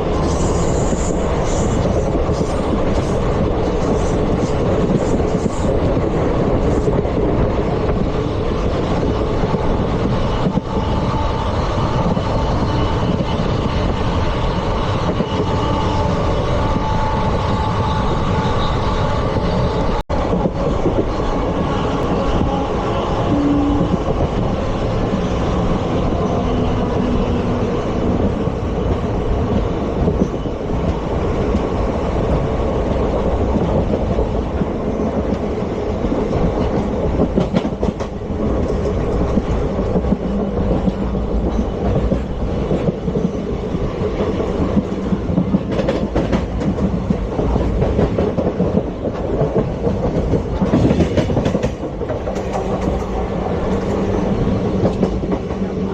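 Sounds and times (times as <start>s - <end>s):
clickety-clack of rail joints: 0.0s - 55.9s
train wheels rumbling on rail: 0.0s - 55.9s.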